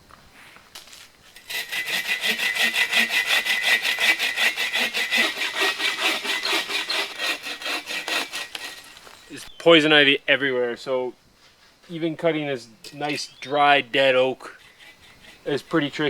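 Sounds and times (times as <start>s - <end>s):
bow saw cutting wood: 1.4s - 9.4s, 14.5s - 16.0s.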